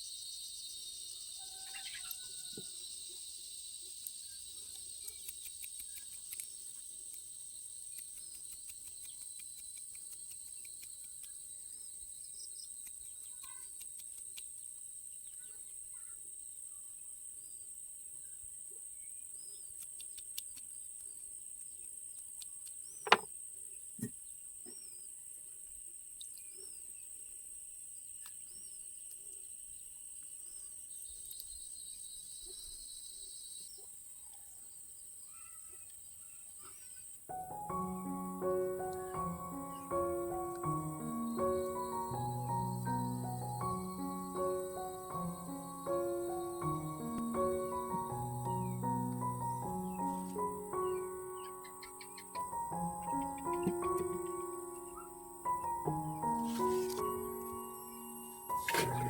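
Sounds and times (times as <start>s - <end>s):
bird chirps: 0.0s - 17.6s, 30.4s - 34.6s, 35.2s - 59.0s.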